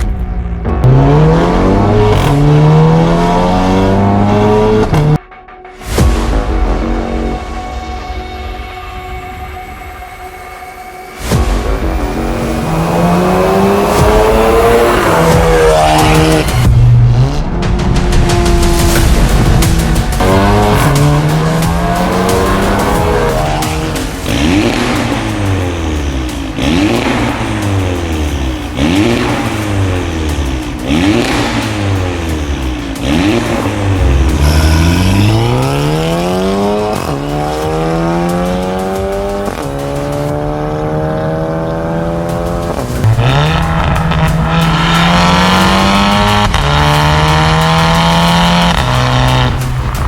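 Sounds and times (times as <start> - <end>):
car engine revving: 0.0 - 5.2, 12.0 - 50.0
car accelerating through gears: 0.8 - 5.2, 33.0 - 49.6.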